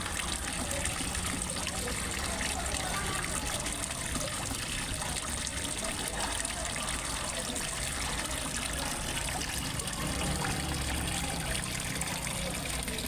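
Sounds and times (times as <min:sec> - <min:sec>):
water splashing into pond: 0:00.0 - 0:13.0.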